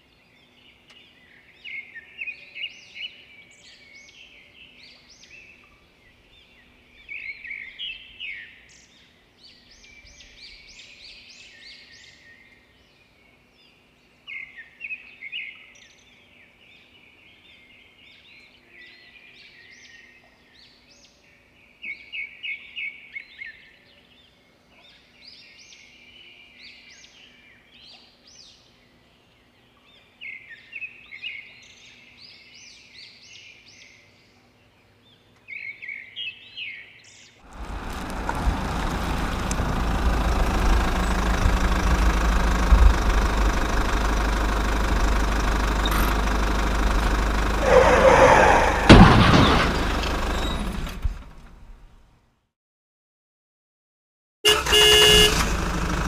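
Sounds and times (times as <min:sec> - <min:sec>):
small birds chirping: 0:24.6 - 0:48.8.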